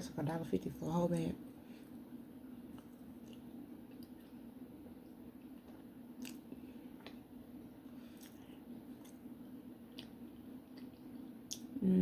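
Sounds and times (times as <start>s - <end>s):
person chewing: 2.7s - 11.8s
wet mouth clicks: 10.8s - 11.7s.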